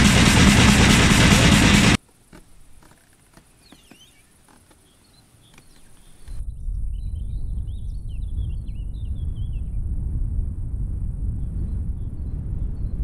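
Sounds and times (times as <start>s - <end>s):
loud low rumble: 0.0s - 2.0s, 6.4s - 13.0s
bird warbling song: 3.4s - 9.8s
faint bird chirps: 3.4s - 9.8s.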